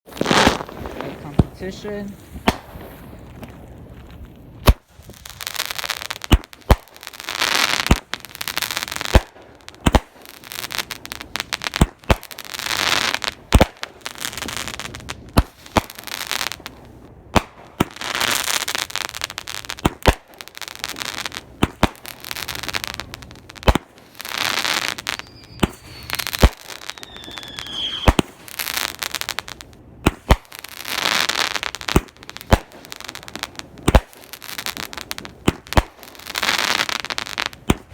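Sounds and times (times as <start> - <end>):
fireworks bangs with crackling: 0.1 - 37.9
firework whistle falling in pitch: 25.1 - 28.2.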